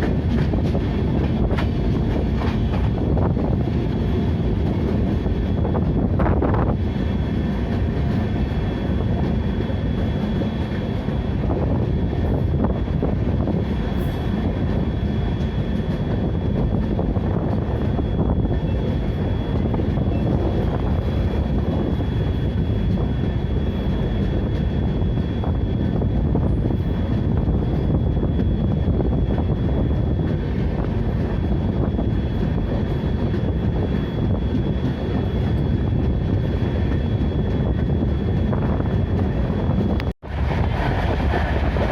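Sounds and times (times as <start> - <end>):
train rumbling: 0.0 - 41.9.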